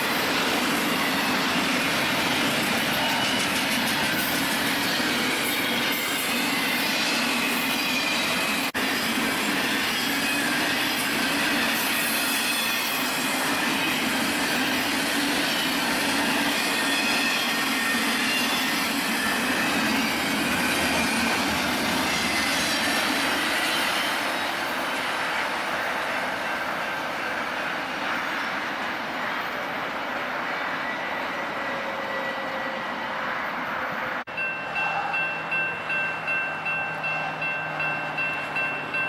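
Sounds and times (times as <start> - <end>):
train wheels rolling on rails: 0.0 - 39.0.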